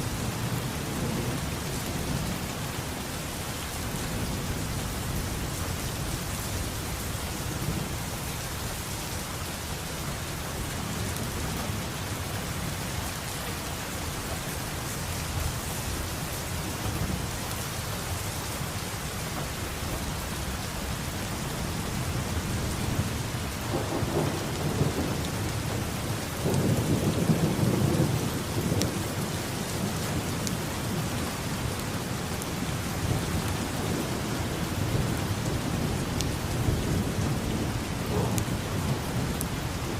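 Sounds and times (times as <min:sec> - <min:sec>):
heavy rain: 0:00.0 - 0:39.9
rolling thunder: 0:22.2 - 0:31.1, 0:33.0 - 0:39.9.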